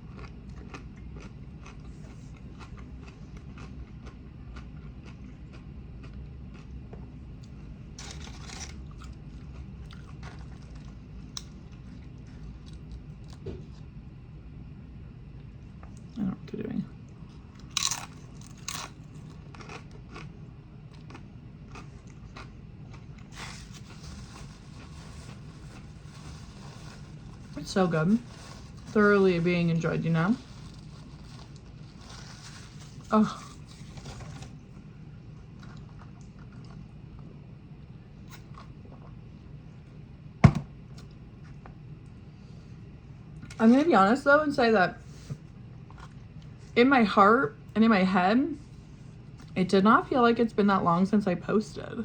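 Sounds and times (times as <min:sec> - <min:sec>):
chewing: 0:00.0 - 0:06.8, 0:07.4 - 0:13.4, 0:17.6 - 0:27.6, 0:35.4 - 0:37.3
crunching chips: 0:08.0 - 0:11.5, 0:17.6 - 0:29.0.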